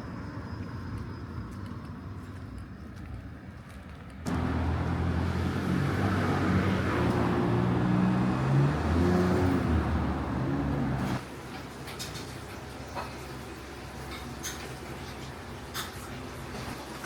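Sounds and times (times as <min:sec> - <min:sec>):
traffic noise: 0:00.0 - 0:17.0
vehicle engine running: 0:04.3 - 0:11.2.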